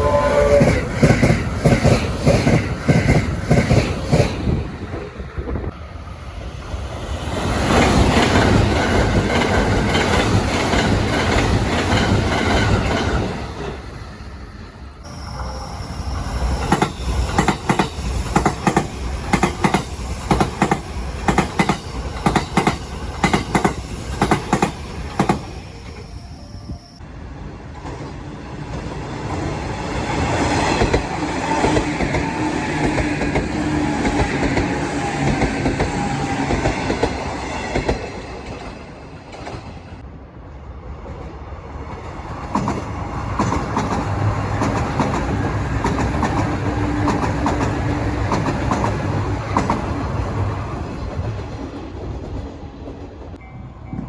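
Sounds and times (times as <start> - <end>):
train passing with smooth rumble: 0.0 - 54.0
train wheels clattering over rail joints: 7.6 - 13.8, 16.6 - 25.5, 42.4 - 50.2.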